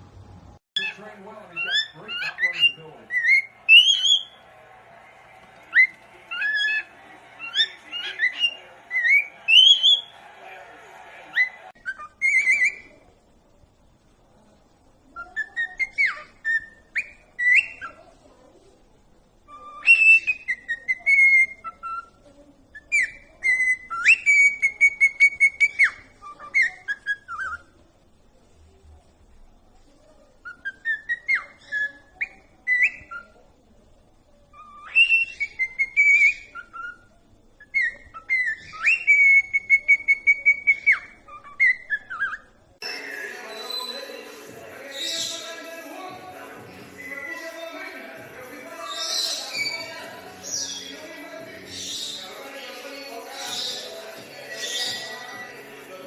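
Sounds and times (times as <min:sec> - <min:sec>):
pet bird whistling a tune: 0:01.6 - 0:04.4, 0:05.7 - 0:10.2, 0:11.4 - 0:12.9, 0:19.5 - 0:22.1, 0:22.8 - 0:27.6, 0:34.6 - 0:42.5, 0:48.9 - 0:51.0.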